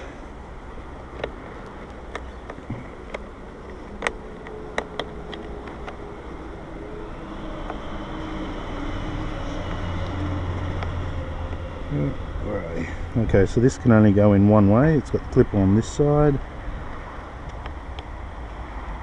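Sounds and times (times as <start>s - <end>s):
low steady hum: 0.0s - 19.0s
clicks and taps of plastic parts: 1.1s - 6.0s.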